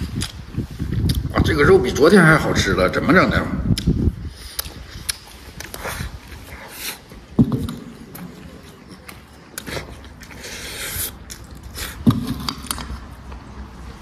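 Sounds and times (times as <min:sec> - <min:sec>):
eating clicks and scrapes: 0:03.7 - 0:14.0
man chewing: 0:03.7 - 0:14.0.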